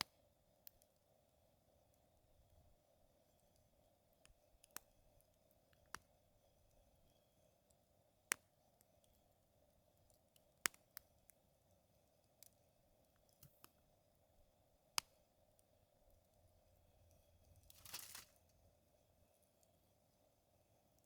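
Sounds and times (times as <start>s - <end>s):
wood fire crackling and popping: 3.4s - 7.2s, 15.0s - 18.6s.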